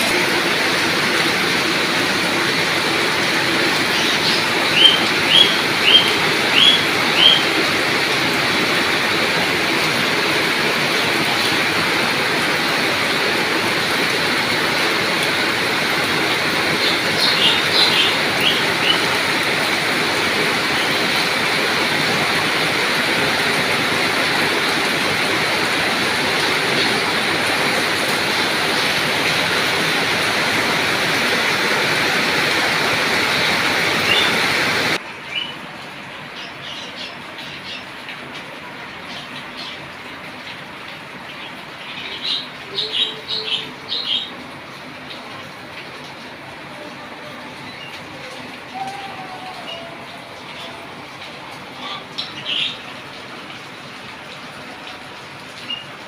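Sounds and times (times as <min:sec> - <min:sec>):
heavy rain falling: 0:00.0 - 0:56.0
bird calling: 0:03.8 - 0:07.6, 0:16.8 - 0:19.2.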